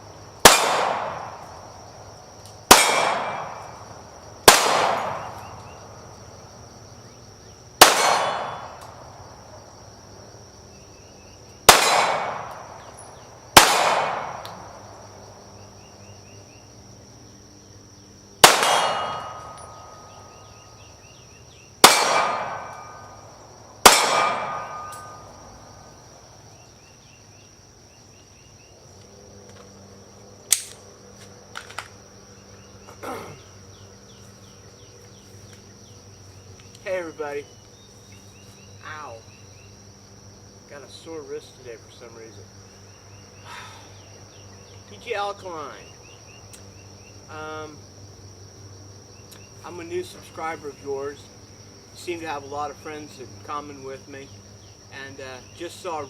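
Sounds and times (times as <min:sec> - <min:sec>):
insects buzzing: 0:00.0 - 0:56.0
gunshots with echo: 0:00.4 - 0:01.4, 0:02.7 - 0:03.7, 0:04.5 - 0:05.4, 0:07.8 - 0:08.8, 0:11.7 - 0:12.8, 0:13.6 - 0:14.6, 0:18.4 - 0:20.0, 0:21.8 - 0:23.0, 0:23.8 - 0:25.2.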